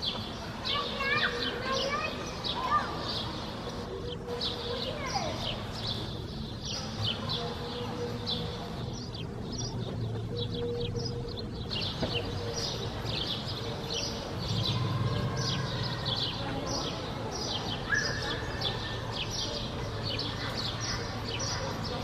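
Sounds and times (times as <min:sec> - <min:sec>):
birds chirping: 0:00.0 - 0:22.0
low city rumble: 0:00.0 - 0:22.0.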